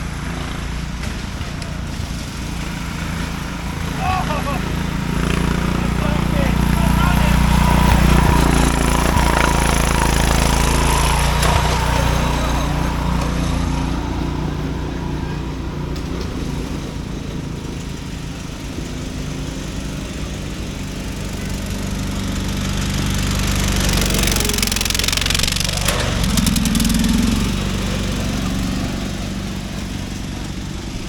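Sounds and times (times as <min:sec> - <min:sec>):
lawn mower engines racing: 0:00.0 - 0:31.0.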